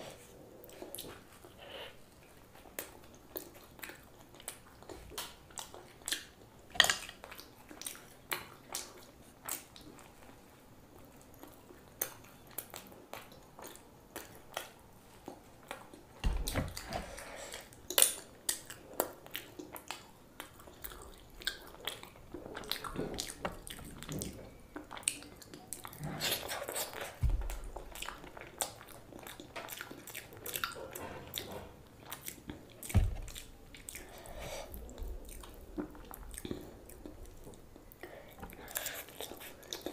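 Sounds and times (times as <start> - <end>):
chewing and biting: 17.6 - 39.9.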